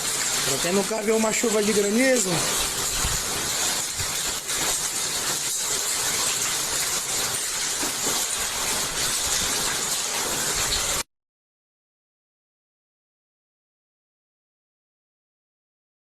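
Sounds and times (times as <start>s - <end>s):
hail and rain falling hard: 0.0s - 11.0s.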